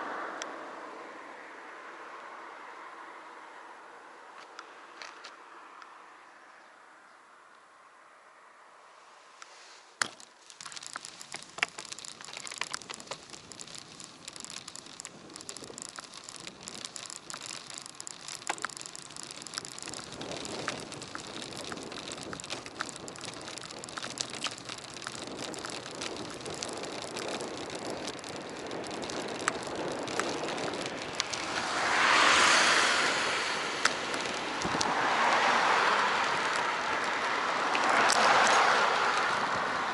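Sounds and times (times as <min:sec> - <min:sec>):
tyre and wind rush: 0:09.5 - 0:39.9
bike rattles and clicks: 0:10.0 - 0:39.9.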